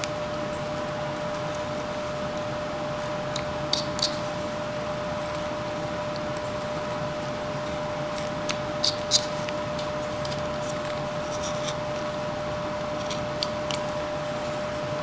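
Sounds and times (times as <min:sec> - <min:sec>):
faint hum: 0:00.0 - 0:15.0
knife carving wood chips: 0:03.1 - 0:04.4, 0:08.0 - 0:14.1.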